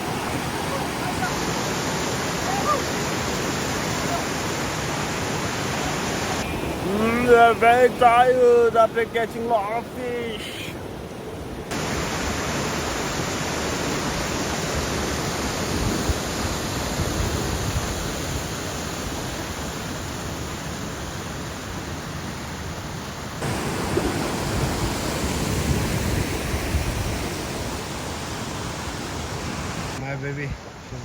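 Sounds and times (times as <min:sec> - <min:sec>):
river rushing over stones: 0:00.0 - 0:30.0.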